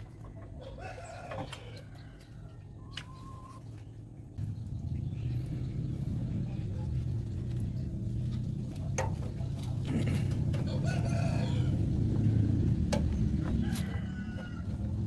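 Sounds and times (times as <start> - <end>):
low engine rumble: 3.0 - 15.0.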